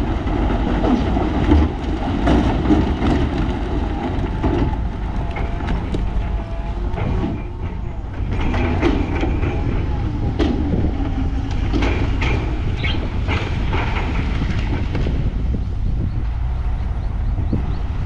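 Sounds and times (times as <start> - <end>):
diesel engine rumbling: 0.0 - 18.0
machinery rattling and clanking: 0.0 - 18.0.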